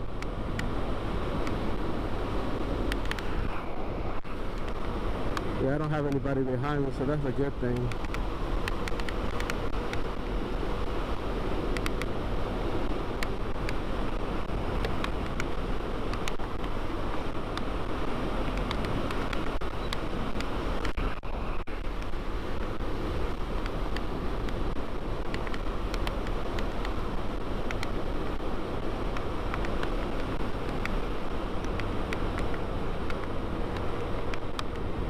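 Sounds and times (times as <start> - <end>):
wind rush over microphone: 0.0 - 35.0.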